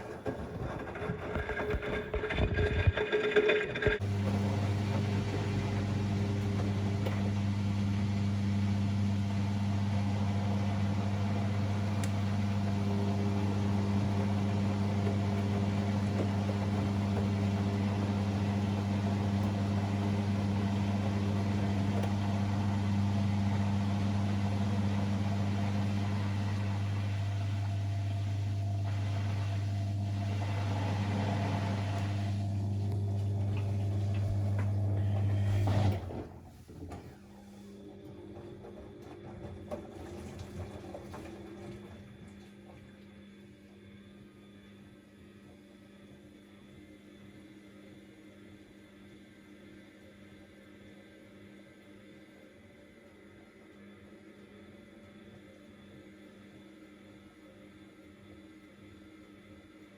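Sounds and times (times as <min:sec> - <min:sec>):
washing machine humming: 0:00.0 - 0:43.8.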